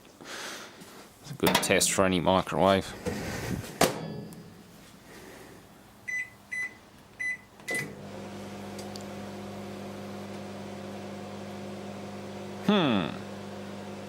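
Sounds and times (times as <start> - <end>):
microwave keypad beeps: 6.1 - 8.0
microwave humming: 6.1 - 14.0.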